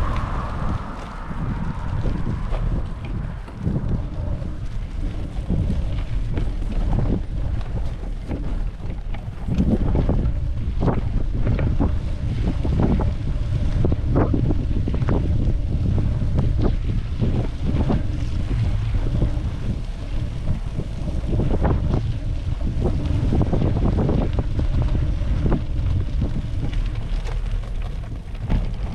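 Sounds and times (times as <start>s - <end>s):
strong wind buffeting microphone: 0.0s - 28.9s.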